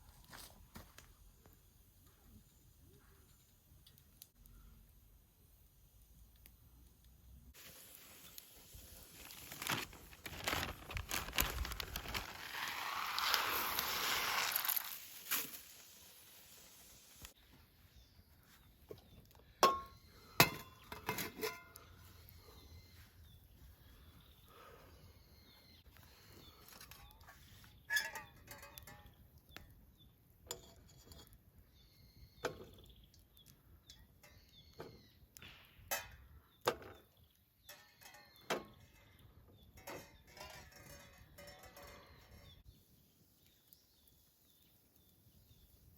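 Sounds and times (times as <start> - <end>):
camp cooking gear clinking: 19.6 - 22.0, 27.9 - 29.2, 37.6 - 42.6.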